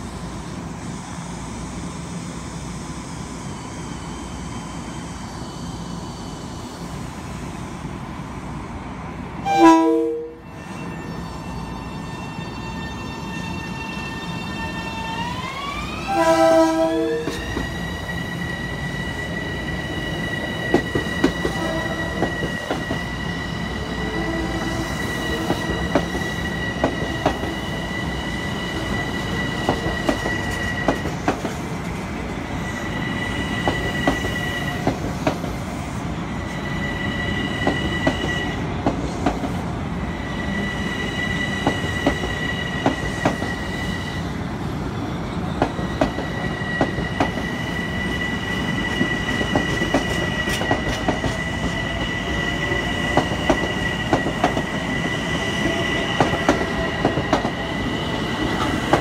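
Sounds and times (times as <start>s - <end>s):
electric train propulsion whine: 0.0s - 59.0s
train horn blast: 9.4s - 10.5s, 16.1s - 17.4s.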